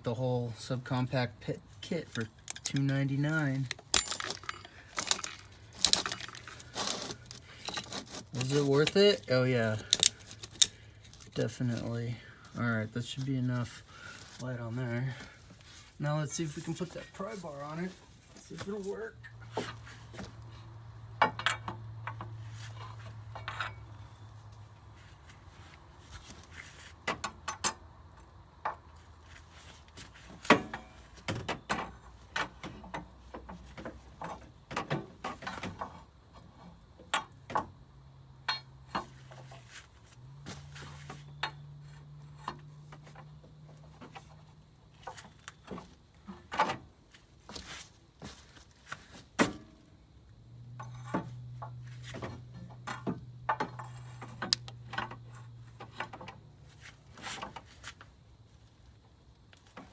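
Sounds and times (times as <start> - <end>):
metal tools clicking and knocking: 2.1 - 11.4, 38.5 - 39.1.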